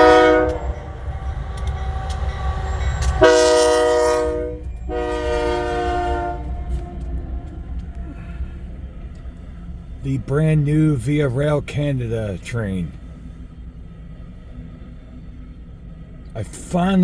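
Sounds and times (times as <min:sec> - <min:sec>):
locomotive air horn blasts: 0:00.0 - 0:01.0, 0:03.1 - 0:06.9
passing train rumble: 0:00.0 - 0:17.0.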